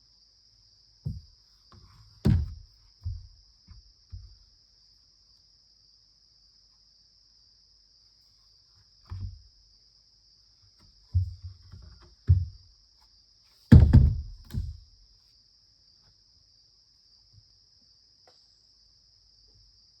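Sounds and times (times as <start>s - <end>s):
crickets chirring: 0.0s - 20.0s
dull thuds: 1.0s - 4.5s, 9.1s - 9.5s, 11.1s - 12.7s, 13.7s - 15.0s.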